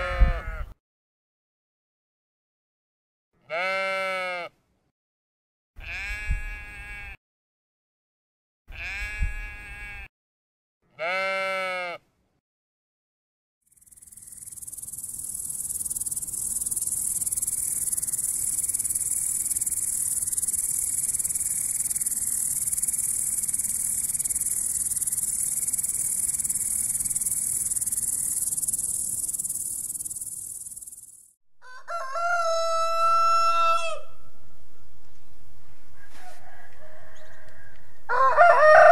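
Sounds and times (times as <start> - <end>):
sheep bleating: 0.0 - 0.7, 3.4 - 4.5, 5.8 - 7.2, 8.7 - 10.1, 10.9 - 12.0
grasshoppers buzzing: 13.7 - 31.3
rooster crowing: 31.6 - 34.3, 36.0 - 38.9.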